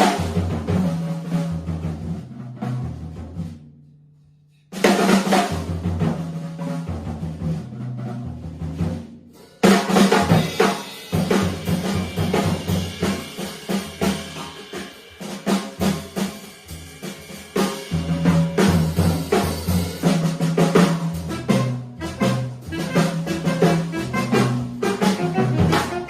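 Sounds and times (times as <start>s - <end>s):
jazz drum fills: 0.0s - 3.8s, 4.7s - 26.0s.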